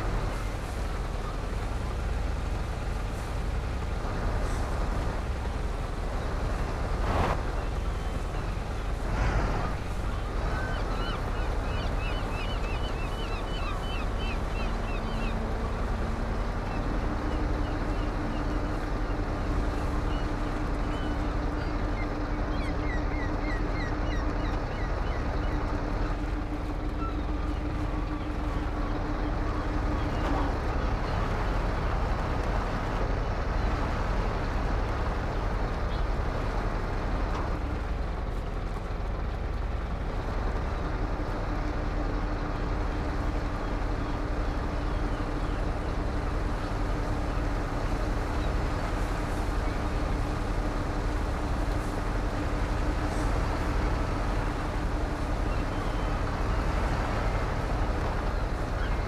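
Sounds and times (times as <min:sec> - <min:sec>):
truck engine rumble: 0:00.0 - 0:59.0.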